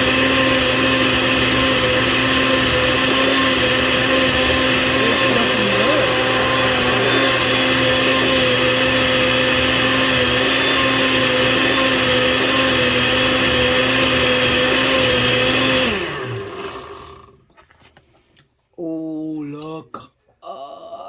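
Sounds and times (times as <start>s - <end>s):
blender motor winding down: 0.0s - 17.4s
electric blender running: 0.0s - 17.4s.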